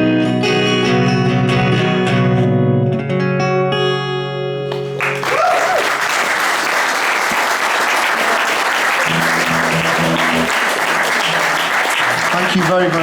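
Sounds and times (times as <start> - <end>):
guitar strummed chords: 0.0 - 5.2, 9.0 - 13.0
audience applause and cheering: 4.8 - 13.0.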